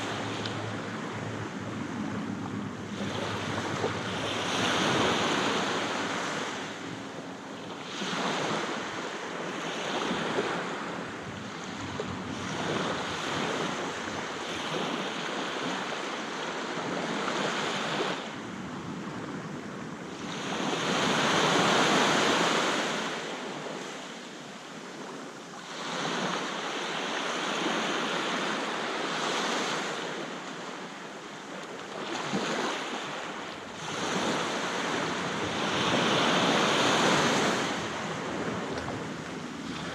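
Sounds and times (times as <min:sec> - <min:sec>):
wind buffeting microphone: 0:00.0 - 0:22.5, 0:32.2 - 0:39.9
sea waves breaking on beach: 0:00.0 - 0:39.9.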